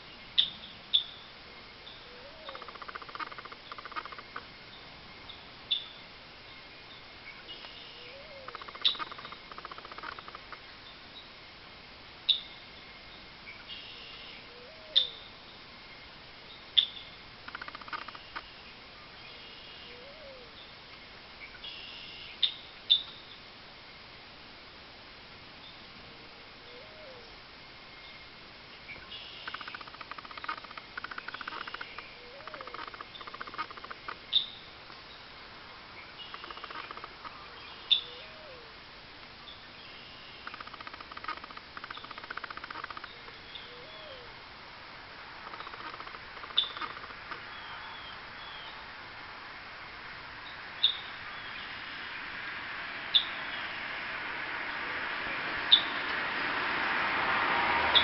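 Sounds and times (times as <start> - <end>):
wavering bird calls: 0.3 - 6.0, 6.9 - 10.6, 13.5 - 15.5, 16.8 - 20.7, 26.6 - 27.4, 28.8 - 35.3, 35.9 - 38.8, 39.5 - 44.4, 45.3 - 48.8, 50.4 - 51.8, 55.3 - 56.1
buzzy bird chatter: 2.3 - 4.5, 7.6 - 10.6, 17.4 - 18.5, 29.4 - 34.5, 36.2 - 38.1, 40.4 - 43.6, 45.4 - 47.5
faint rapid ticking: 2.5 - 4.5, 8.4 - 10.6, 17.4 - 18.4, 29.4 - 34.2, 40.4 - 43.4
bird chips: 29.2 - 34.6, 36.2 - 38.0, 40.4 - 43.4, 45.4 - 47.4.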